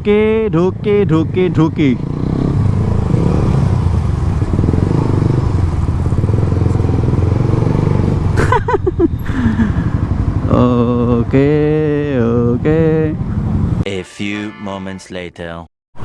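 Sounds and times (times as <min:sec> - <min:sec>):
motorcycle engine running: 0:00.9 - 0:12.0.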